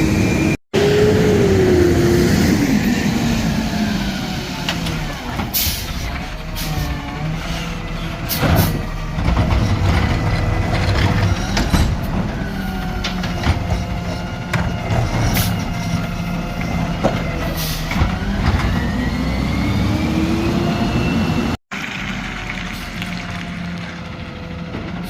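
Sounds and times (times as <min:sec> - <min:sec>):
garbage truck engine running: 0:00.0 - 0:25.0
clanks and knocks: 0:08.3 - 0:18.8.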